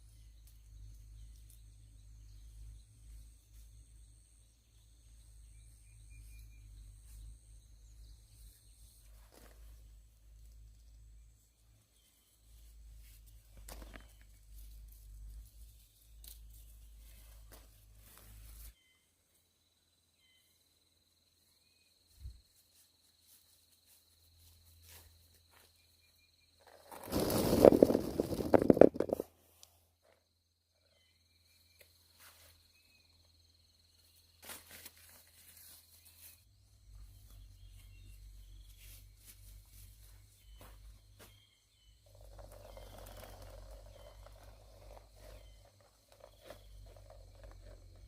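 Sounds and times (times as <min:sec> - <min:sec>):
faint high insect trill: 0:00.0 - 0:48.0
faint rustling: 0:26.7 - 0:29.7.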